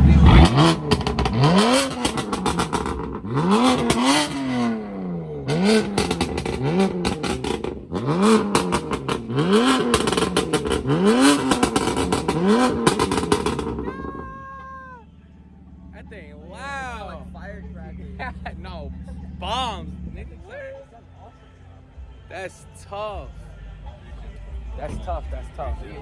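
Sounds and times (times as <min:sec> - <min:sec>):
car engine revving: 0:00.0 - 0:14.4, 0:15.1 - 0:20.5
exhaust crackling and popping: 0:00.0 - 0:14.7.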